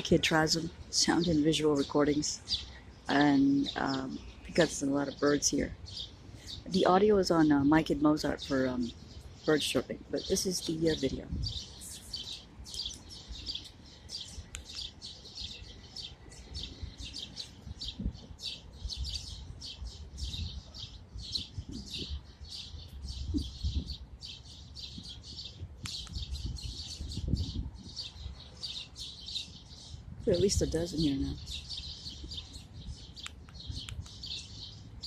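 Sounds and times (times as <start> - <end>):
flock of birds chirping: 0.0 - 35.0.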